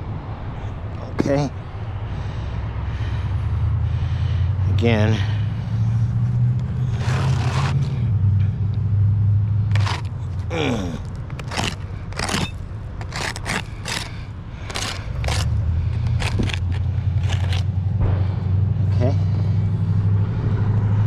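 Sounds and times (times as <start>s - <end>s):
roof shingle scraping: 6.8s - 8.0s, 9.7s - 17.7s
low rumble: 15.2s - 21.0s.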